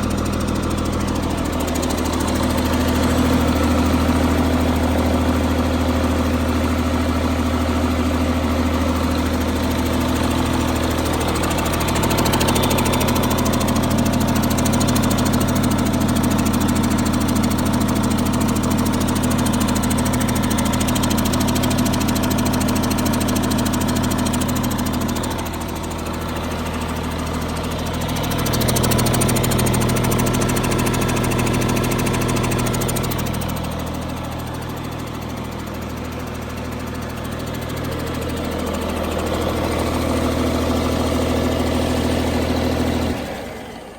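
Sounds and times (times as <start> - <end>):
diesel truck engine running: 0.0 - 43.9.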